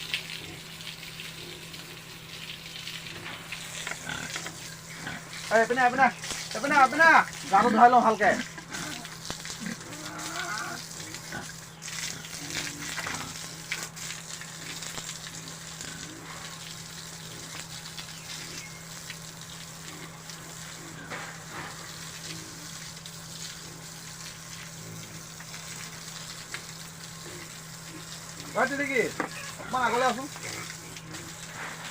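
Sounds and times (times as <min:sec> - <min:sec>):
water spraying hiss: 0:00.0 - 0:31.9
pig grunts: 0:00.3 - 0:02.2, 0:03.0 - 0:05.7, 0:08.4 - 0:13.9, 0:14.5 - 0:17.6, 0:19.8 - 0:22.8, 0:24.7 - 0:25.9, 0:27.2 - 0:31.9.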